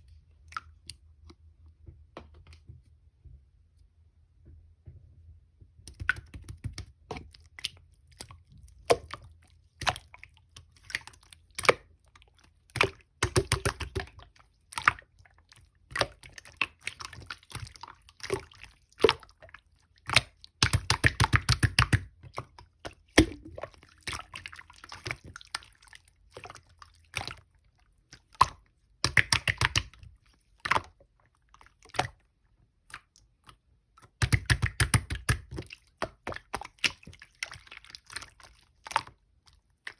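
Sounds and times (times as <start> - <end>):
small bubble pops: 5.9 - 7.7, 23.1 - 23.7, 34.1 - 37.2.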